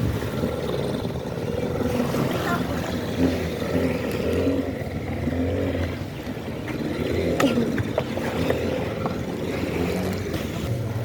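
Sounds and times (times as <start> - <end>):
motorboat engine humming: 0.0 - 11.0.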